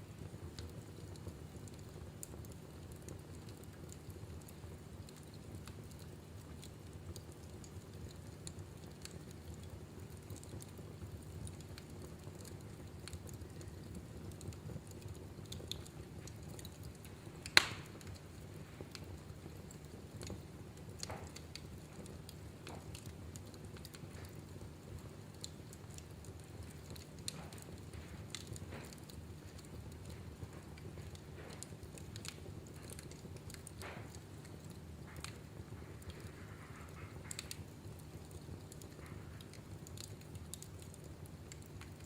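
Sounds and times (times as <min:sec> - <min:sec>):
fire flames rumbling: 0:00.0 - 0:42.0
wood fire crackling: 0:00.0 - 0:42.0
loud fire pop: 0:17.6 - 0:17.9.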